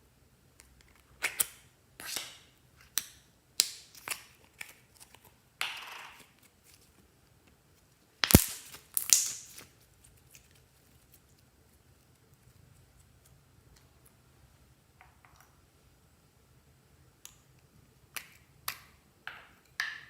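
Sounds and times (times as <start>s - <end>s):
slime popping and crackling: 8.2s - 10.5s.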